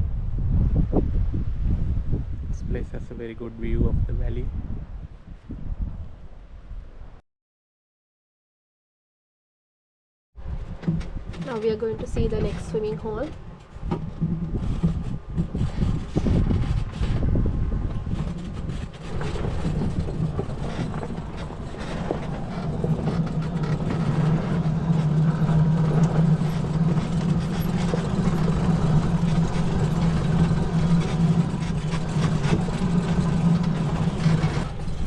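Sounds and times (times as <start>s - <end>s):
vehicle rumble on rough track: 10.4s - 35.0s
electric vehicle motor hum: 14.0s - 35.0s.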